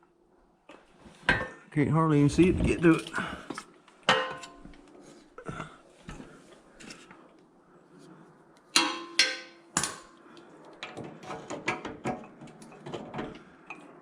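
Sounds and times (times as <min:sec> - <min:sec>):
metal tools clanking: 0:04.1 - 0:04.8.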